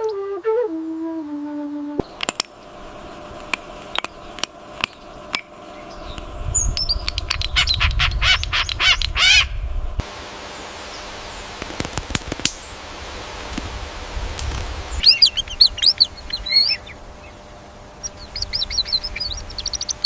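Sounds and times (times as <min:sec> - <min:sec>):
whistled flute-like tone: 0:00.0 - 0:02.1
low rumble: 0:02.0 - 0:10.0
bird clicks and chirps: 0:03.5 - 0:07.8
harsh raspy bird chatter: 0:15.0 - 0:20.0.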